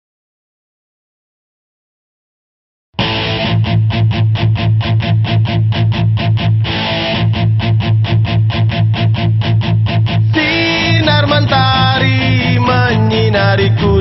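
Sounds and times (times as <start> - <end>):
guitar strumming chords: 3.0 - 14.0.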